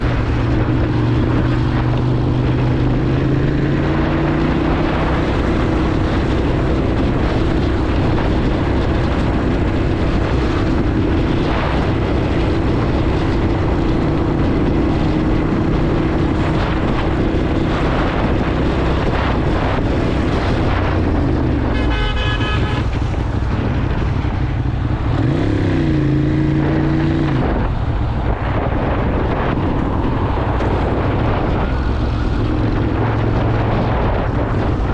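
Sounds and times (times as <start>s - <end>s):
motorcycle engine running: 0.0s - 34.9s
wind rush: 0.0s - 34.9s
horn sounding: 21.6s - 23.1s.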